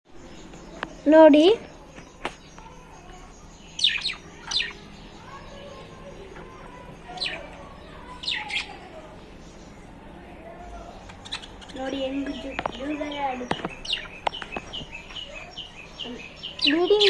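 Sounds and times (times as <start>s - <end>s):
lovebirds chirping: 0.1s - 17.0s.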